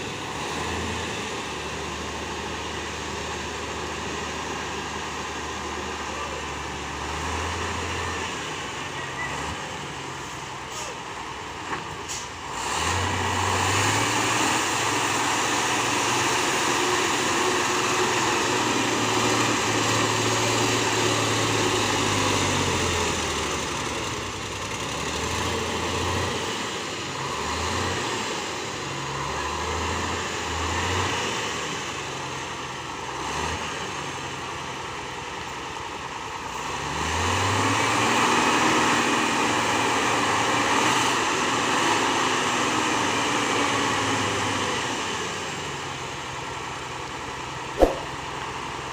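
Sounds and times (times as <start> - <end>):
truck engine revving: 0.0 - 8.8, 12.4 - 31.7, 36.6 - 45.1.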